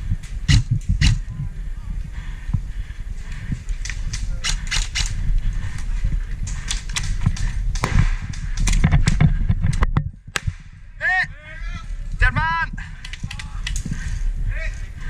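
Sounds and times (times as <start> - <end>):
low rumble: 0.0 - 15.0
airsoft guns firing: 7.7 - 9.0.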